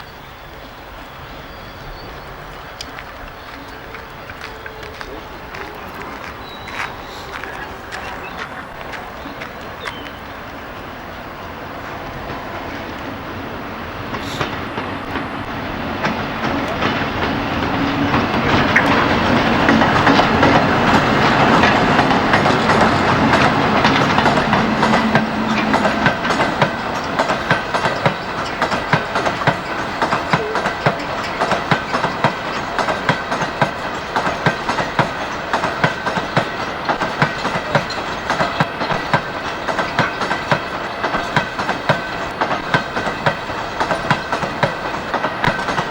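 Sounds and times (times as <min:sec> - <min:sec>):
diesel locomotive engine: 0:00.0 - 0:45.9
wagon wheels clattering over rail joints: 0:14.1 - 0:45.9.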